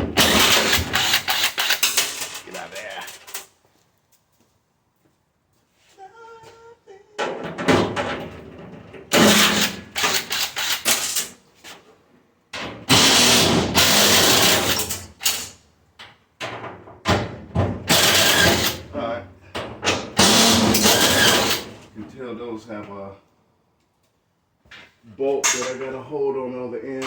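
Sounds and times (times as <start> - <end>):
metal panels clanking and scraping: 0.0 - 3.5, 7.2 - 11.3.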